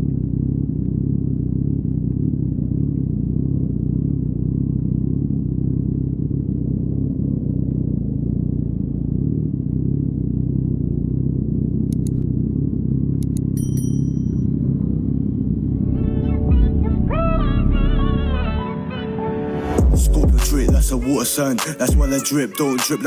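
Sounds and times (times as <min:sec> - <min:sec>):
motorcycle engine running: 0:00.0 - 0:17.5, 0:19.6 - 0:21.2
music: 0:15.8 - 0:23.0.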